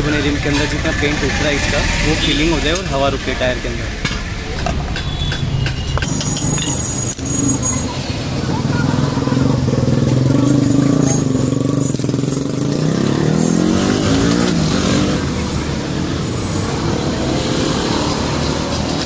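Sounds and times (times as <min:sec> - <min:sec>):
vehicle engine accelerating: 0:06.0 - 0:19.0.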